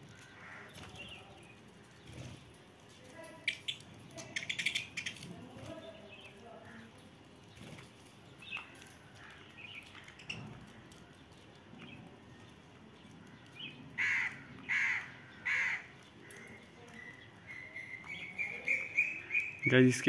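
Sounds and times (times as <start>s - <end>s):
loud harsh bird calls: 0.0s - 1.3s, 13.2s - 20.0s.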